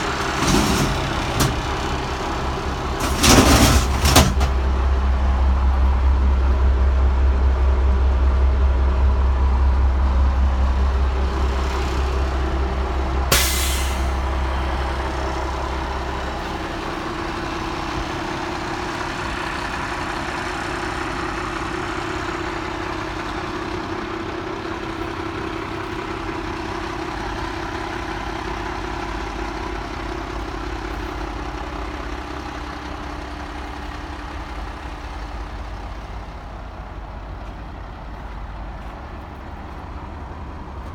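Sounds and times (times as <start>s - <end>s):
diesel truck engine running: 0.0s - 40.9s
air brake hiss: 13.3s - 14.2s.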